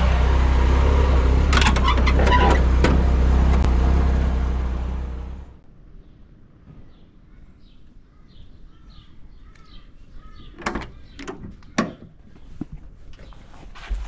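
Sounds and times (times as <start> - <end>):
sharp clunks: 1.0 - 3.8.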